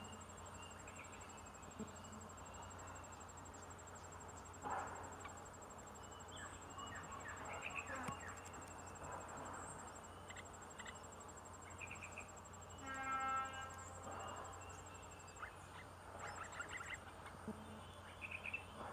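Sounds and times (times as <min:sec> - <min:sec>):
short insect chirps: 0:00.0 - 0:18.8
insect trilling: 0:09.7 - 0:18.7.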